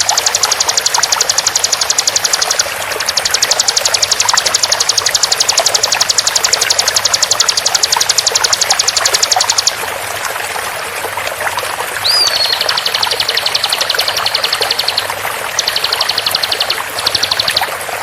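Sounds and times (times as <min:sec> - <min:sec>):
bird trilling: 0:00.0 - 0:09.8, 0:12.0 - 0:17.7
running water: 0:00.0 - 0:18.0
swooping whistle: 0:12.0 - 0:17.6.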